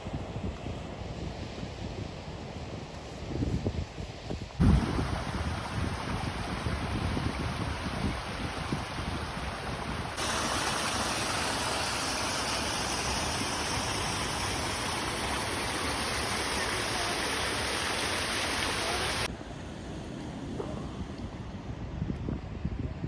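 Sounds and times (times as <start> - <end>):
wind on microphone: 0.0 - 19.3
waterfall rushing: 4.6 - 19.3.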